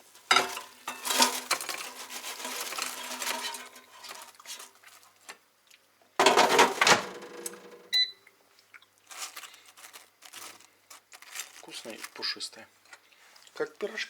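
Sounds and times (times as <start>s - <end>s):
kitchenware clattering: 0.1s - 4.7s, 6.2s - 7.9s.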